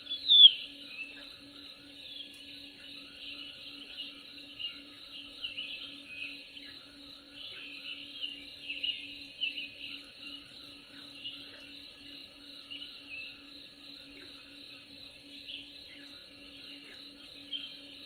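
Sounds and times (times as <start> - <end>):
small birds chirping: 0.0 - 1.3.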